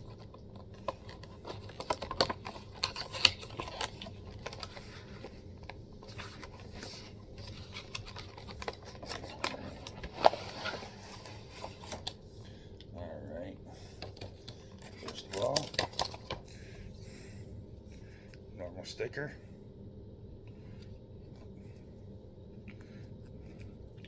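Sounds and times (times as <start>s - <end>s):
packaging clicks and rustles: 0.0s - 12.2s, 14.0s - 16.5s.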